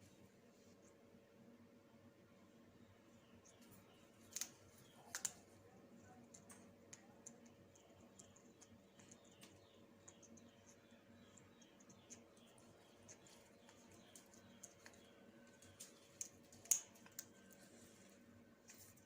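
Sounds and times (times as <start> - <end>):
parrot beak clicking on leaves: 4.3 - 5.4.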